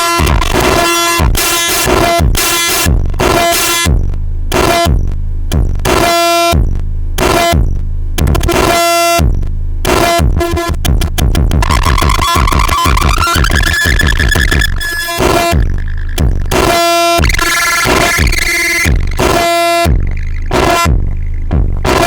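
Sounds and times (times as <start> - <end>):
electronic noise music: 0.0 - 22.0
heavy bass: 0.0 - 22.0.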